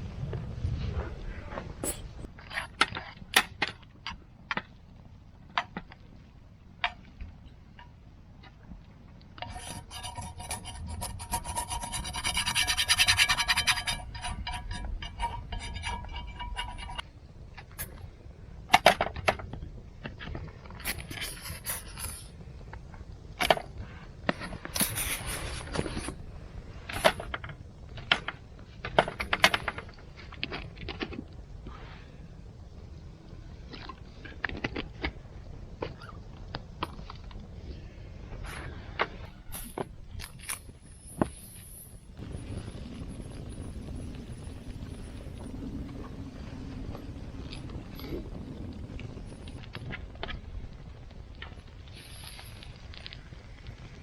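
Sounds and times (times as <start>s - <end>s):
rhythmic scraping with ringing tone: 9.4s - 17.0s.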